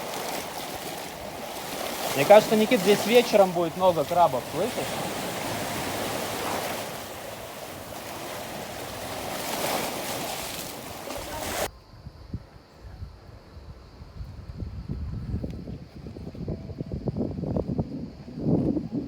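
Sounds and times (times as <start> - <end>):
sea waves washing on shore: 0.0 - 11.7
wind on microphone: 4.4 - 19.0.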